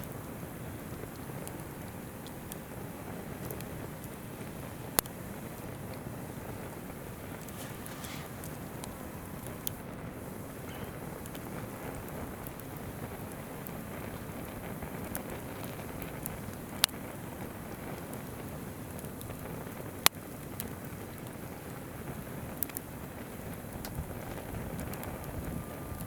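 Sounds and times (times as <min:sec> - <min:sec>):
campfire wood crackling and popping: 0:00.0 - 0:26.0
babbling river rushing: 0:07.0 - 0:14.2.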